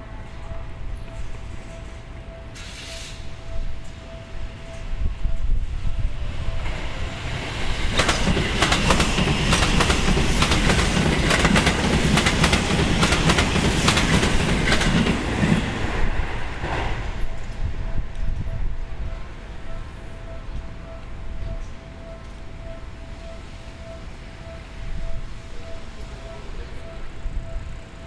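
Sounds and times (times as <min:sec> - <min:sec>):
train wheels clattering over rail joints: 0:07.8 - 0:16.0.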